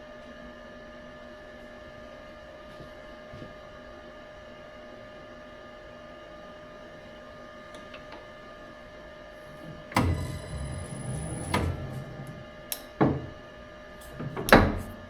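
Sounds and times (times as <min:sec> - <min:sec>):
machine tool whining: 0:09.4 - 0:13.3
loud clunk and clatter: 0:09.6 - 0:13.4.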